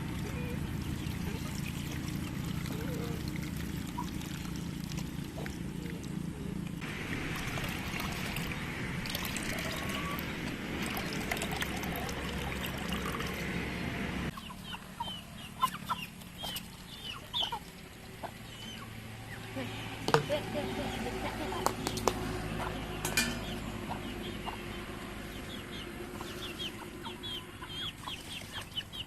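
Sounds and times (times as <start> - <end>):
bird calls and clucks: 12.8 - 19.5, 20.1 - 29.0.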